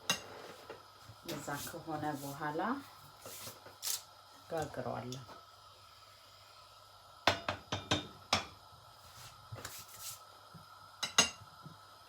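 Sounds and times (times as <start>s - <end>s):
utensil clinking on cookware: 11.0s - 11.4s.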